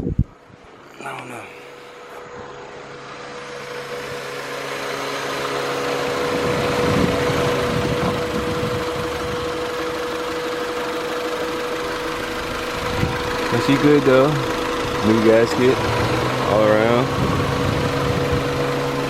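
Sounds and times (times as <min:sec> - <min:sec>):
car engine idling: 0:00.7 - 0:19.0.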